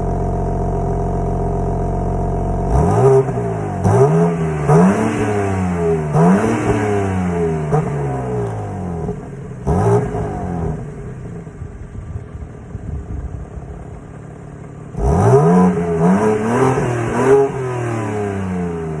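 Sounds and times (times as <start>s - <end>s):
engine revving in throttle blips: 0.0s - 11.4s, 14.9s - 19.0s.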